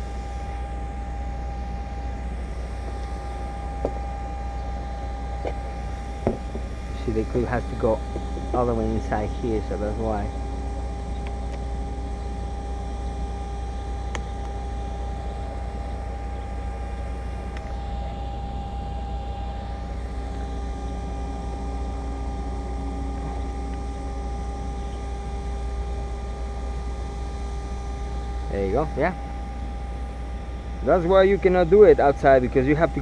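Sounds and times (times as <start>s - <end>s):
steady mechanical drone: 0.0s - 33.0s.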